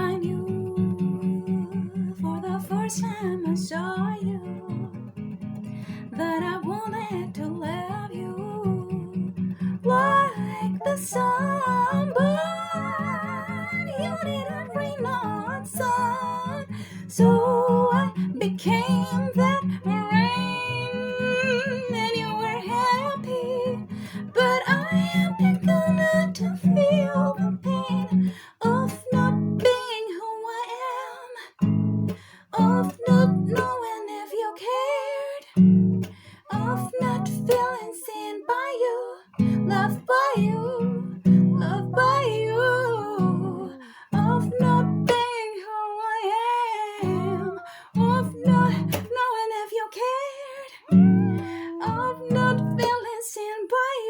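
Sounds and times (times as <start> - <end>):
person singing slow melody: 9.8 - 29.4, 32.5 - 35.5, 36.4 - 45.2, 46.6 - 53.2
acoustic guitar strumming: 10.0 - 28.3.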